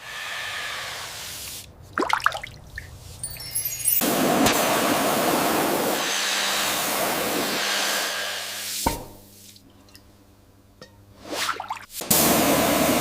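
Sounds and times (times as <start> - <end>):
spray hissing: 0.0 - 1.7, 3.7 - 9.6, 11.3 - 13.0.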